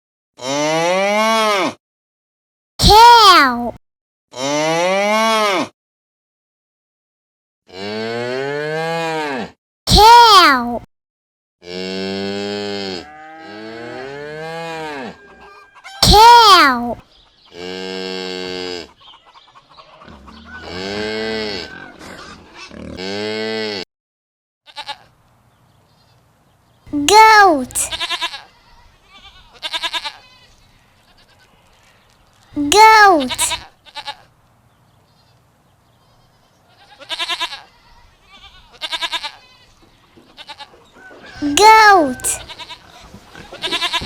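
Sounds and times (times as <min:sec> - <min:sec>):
cow mooing: 0:11.6 - 0:15.2, 0:20.0 - 0:22.0
goat bleating: 0:24.7 - 0:25.1, 0:27.0 - 0:30.5, 0:32.7 - 0:34.3, 0:36.7 - 0:39.7, 0:41.4 - 0:44.0.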